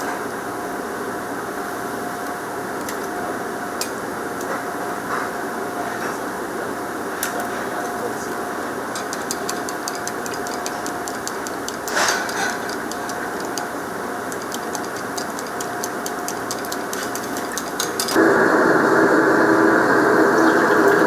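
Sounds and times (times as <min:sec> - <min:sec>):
kitchen roar: 0:04.4 - 0:21.0
small crackles and ticks: 0:14.3 - 0:18.2.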